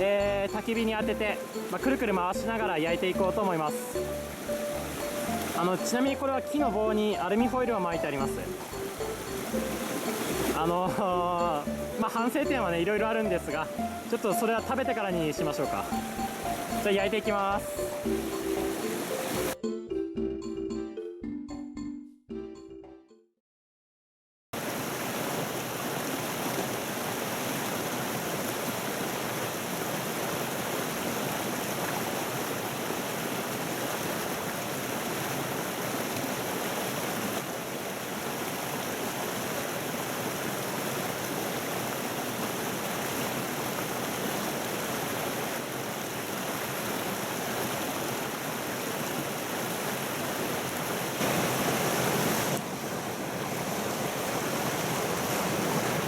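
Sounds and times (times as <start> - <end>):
stream water rushing: 0.0 - 19.6, 24.6 - 56.0.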